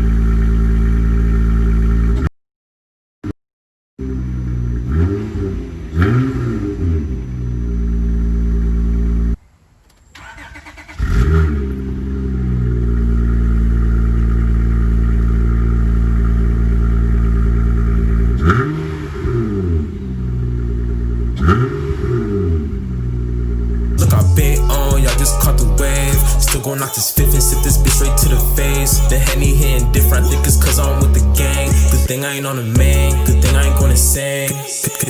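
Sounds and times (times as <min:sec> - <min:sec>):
car engine deep drone: 0:00.0 - 0:02.3, 0:04.0 - 0:09.4, 0:11.0 - 0:34.2
engine revving blips: 0:04.0 - 0:09.4, 0:10.2 - 0:32.1.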